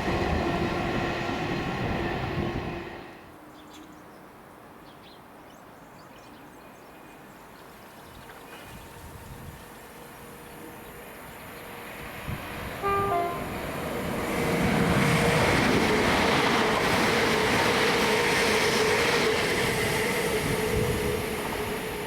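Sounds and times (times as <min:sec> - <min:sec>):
train passing at speed: 0:00.0 - 0:03.5, 0:07.7 - 0:22.0
train two-tone horn: 0:12.2 - 0:14.0.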